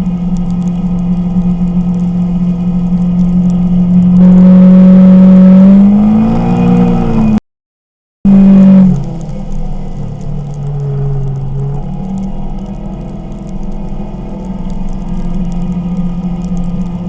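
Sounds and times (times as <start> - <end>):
side-by-side engine running: 0.0 - 7.4, 8.3 - 17.0.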